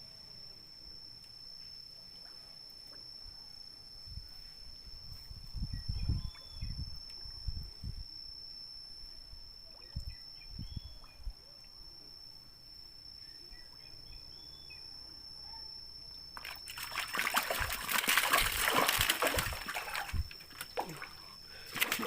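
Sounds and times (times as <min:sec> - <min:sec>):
faint bird chirps: 0:05.6 - 0:07.5, 0:09.6 - 0:12.0, 0:13.1 - 0:16.2
water splashing and sloshing: 0:16.4 - 0:22.0.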